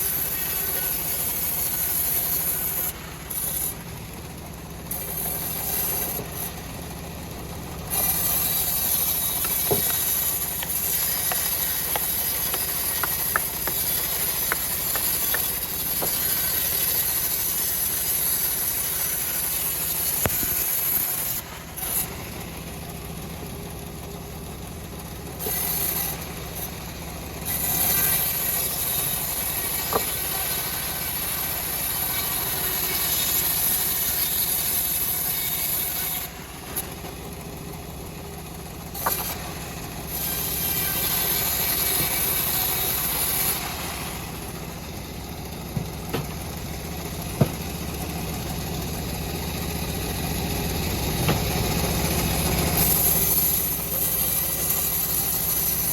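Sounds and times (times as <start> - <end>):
saw blade hissing in wood: 7.9 - 22.0.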